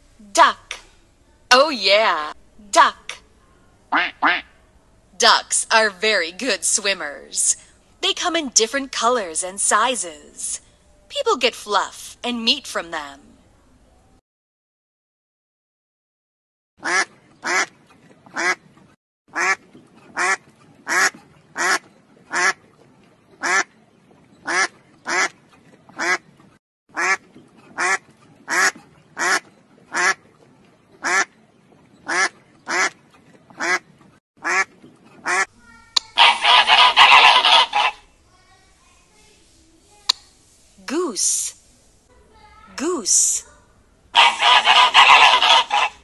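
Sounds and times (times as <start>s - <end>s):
duck quacking: 3.9s - 4.5s, 16.8s - 17.7s, 18.3s - 18.6s, 19.3s - 22.6s, 23.4s - 23.7s, 24.4s - 25.4s, 26.0s - 26.2s, 26.9s - 30.2s, 31.0s - 31.3s, 32.0s - 33.0s, 33.6s - 33.8s, 34.4s - 38.0s, 44.2s - 46.0s.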